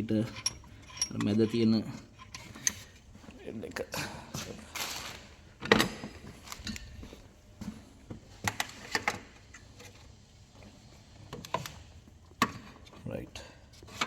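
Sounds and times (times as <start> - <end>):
metal tools clicking and knocking: 0.2 - 2.9.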